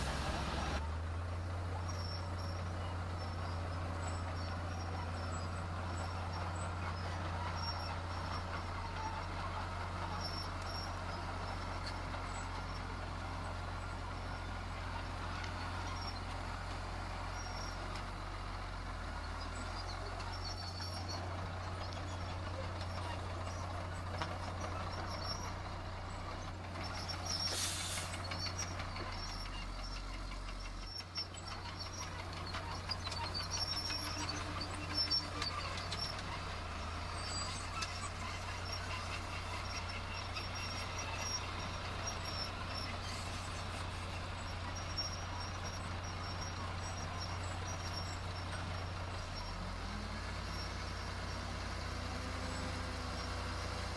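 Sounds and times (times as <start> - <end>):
diesel machinery engine drone: 0.0 - 53.9
short burst of hiss: 27.5 - 28.2.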